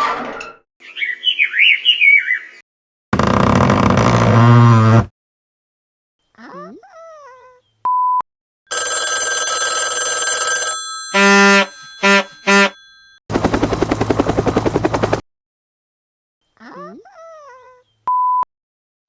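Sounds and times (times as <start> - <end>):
fast-pulsing bell ringing: 8.7 - 13.6
horn-like honks: 11.2 - 13.0.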